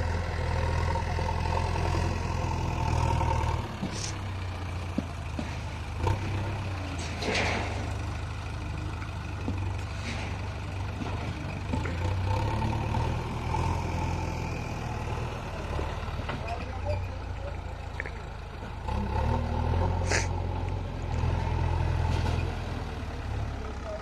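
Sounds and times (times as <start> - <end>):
diesel engine rumbling: 0.0 - 24.0
short hiss: 20.1 - 20.4.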